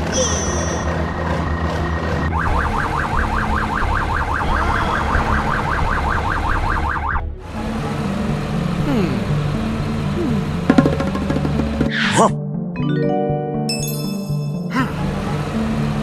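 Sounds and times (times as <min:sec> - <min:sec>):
police siren yelping: 0:02.4 - 0:07.2.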